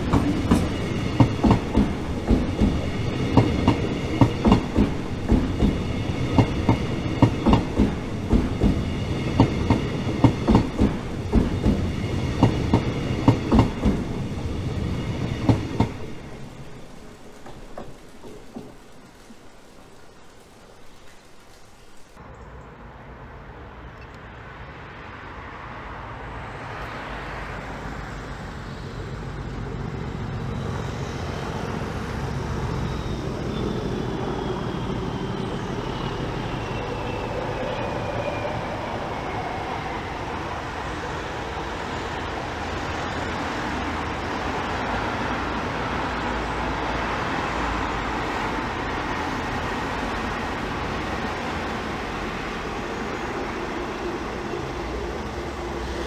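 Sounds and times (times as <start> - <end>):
diesel train engine running: 0.0 - 22.2, 27.8 - 37.4.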